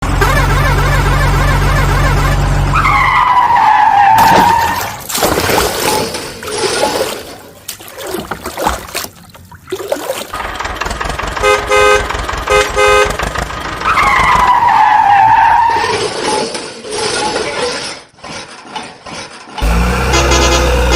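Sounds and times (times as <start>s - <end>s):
cartoon engine hum: 0.0s - 3.4s
short horn toots: 20.0s - 20.9s.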